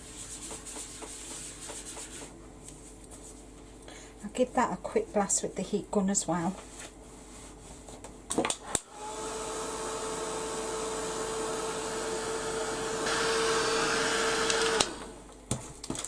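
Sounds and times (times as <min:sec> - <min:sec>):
heat gun humming and blowing air: 0:08.6 - 0:15.3.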